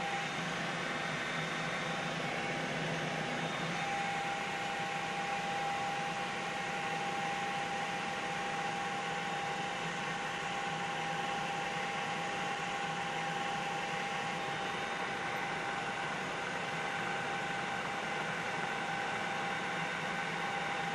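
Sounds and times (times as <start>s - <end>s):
high whine: 0.0s - 8.2s.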